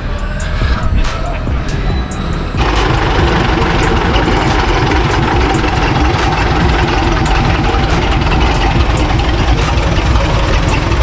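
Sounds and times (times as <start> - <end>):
vehicle engine idling: 1.3 - 11.0
scattered clicks: 2.6 - 11.0.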